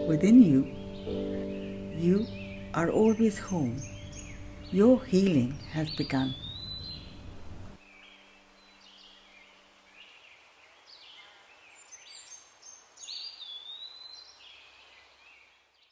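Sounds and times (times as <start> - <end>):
birds chirping and whistling: 0.0 - 9.5
outdoor ambience hiss: 0.0 - 15.9.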